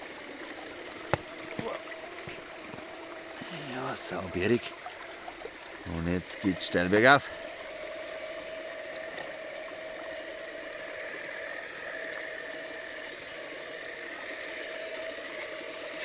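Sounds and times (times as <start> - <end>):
stream and waterfall: 0.0 - 16.0
electric motor whine: 7.3 - 16.0.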